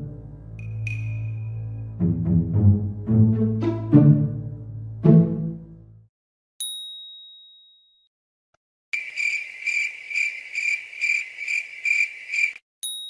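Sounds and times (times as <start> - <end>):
bright ding: 0.6 - 1.6
cricket chirping sound effect: 9.0 - 12.6.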